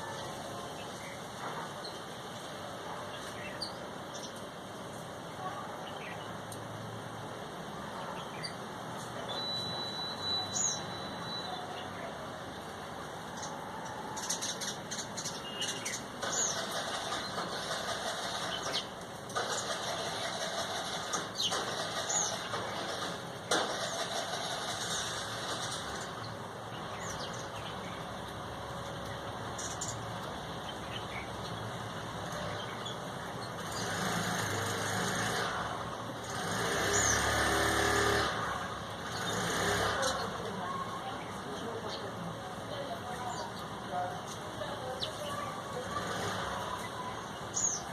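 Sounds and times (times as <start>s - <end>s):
street traffic: 0.0s - 47.9s
bird chirps: 9.2s - 12.0s
vehicle engine: 16.0s - 47.9s.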